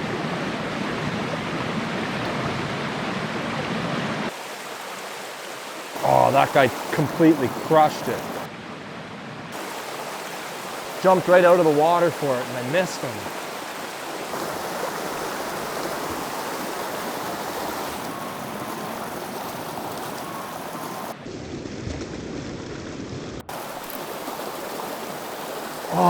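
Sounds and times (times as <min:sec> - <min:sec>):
creek water running over stones: 0:04.3 - 0:08.5, 0:09.6 - 0:21.2, 0:23.5 - 0:26.0.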